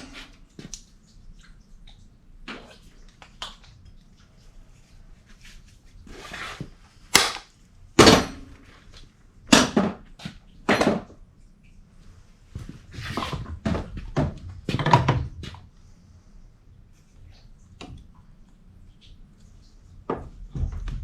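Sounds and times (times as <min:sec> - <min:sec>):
hard objects knocking and clattering: 0:13.2 - 0:15.6.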